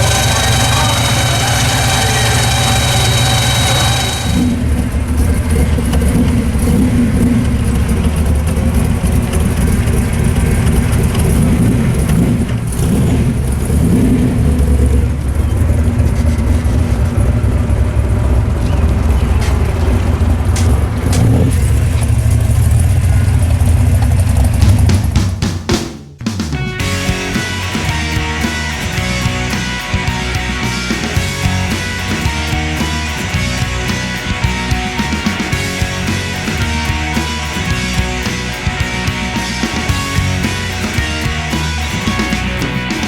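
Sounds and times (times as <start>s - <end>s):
loud heavy car engine: 0.0s - 25.5s, 26.2s - 43.0s.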